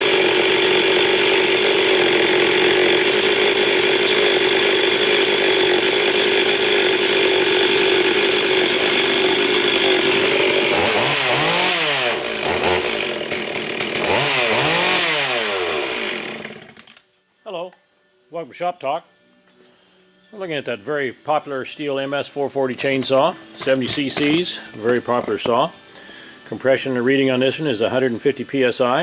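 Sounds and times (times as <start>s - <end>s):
chainsaw running and revving: 0.0s - 17.0s, 22.7s - 25.7s.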